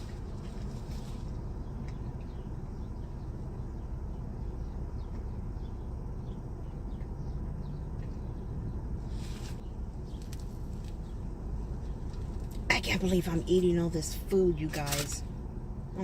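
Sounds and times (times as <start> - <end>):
low rumble inside car: 0.0 - 16.0.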